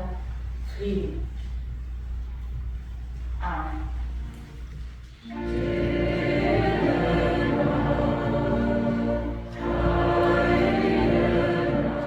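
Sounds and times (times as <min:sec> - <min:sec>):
choir singing held chords: 0:05.2 - 0:12.0.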